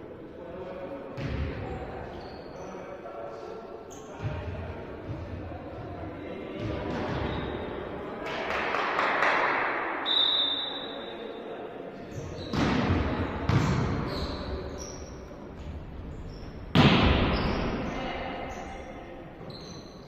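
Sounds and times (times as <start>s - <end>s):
sneakers squeaking on floor: 1.2s - 3.0s, 3.9s - 5.2s, 6.6s - 7.8s, 12.0s - 20.0s
volleyball smacks: 16.7s - 17.4s.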